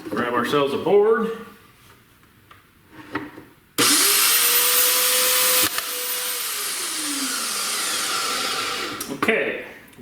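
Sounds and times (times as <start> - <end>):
band saw motor whining: 3.8 - 9.1.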